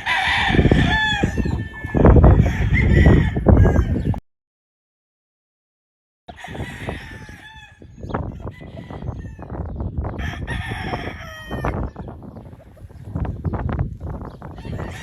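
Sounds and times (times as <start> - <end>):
roosters crowing: 0.0 - 4.2, 6.3 - 13.7, 14.4 - 15.0.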